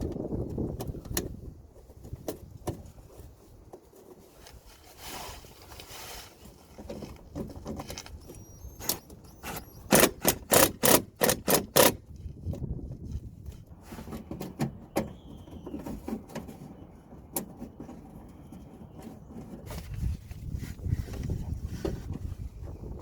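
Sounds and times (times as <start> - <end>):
hand tools clicking on screws: 8.4 - 12.0
sharp metallic clicks: 8.8 - 12.0.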